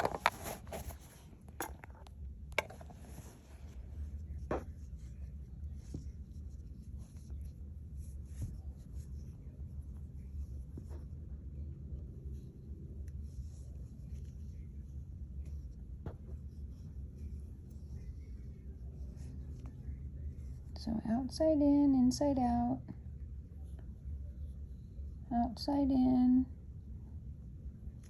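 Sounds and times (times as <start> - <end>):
needle and cord clicks and rustling: 0.0 - 11.2
low steady hum: 0.0 - 28.0.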